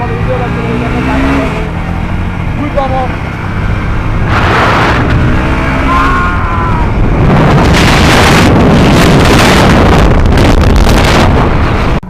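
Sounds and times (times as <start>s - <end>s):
wind buffeting microphone: 3.1s - 12.0s.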